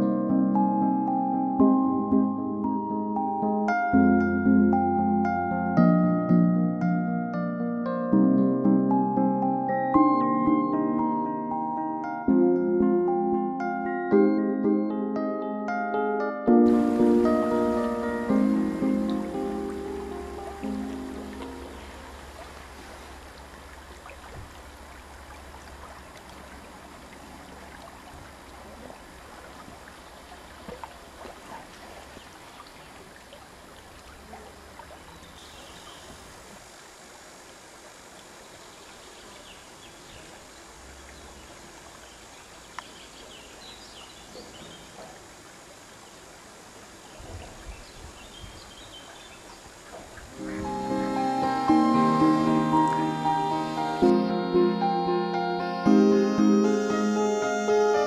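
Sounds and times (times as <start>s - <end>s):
water rushing over rocks: 16.7s - 38.7s.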